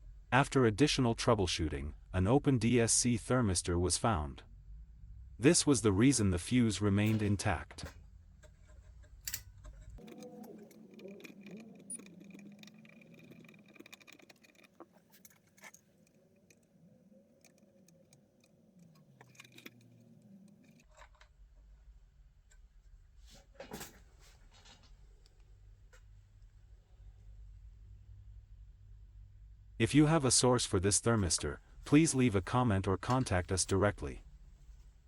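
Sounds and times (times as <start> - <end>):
faint metallic clicks and clinks: 7.0 - 21.3.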